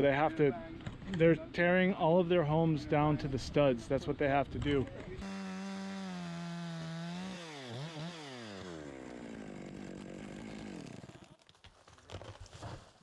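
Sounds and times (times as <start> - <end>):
chainsaw engine revving: 5.2 - 11.4.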